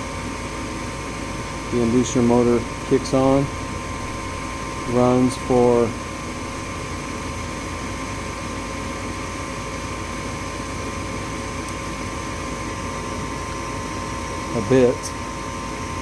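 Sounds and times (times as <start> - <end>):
furnace inducer motor whirring: 0.0 - 16.0.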